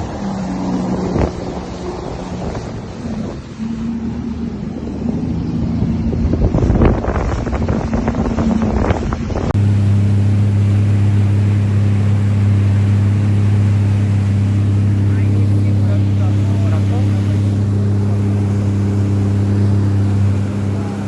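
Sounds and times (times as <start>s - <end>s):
jet ski engine running: 0.0s - 21.0s
water splashing: 9.6s - 21.0s.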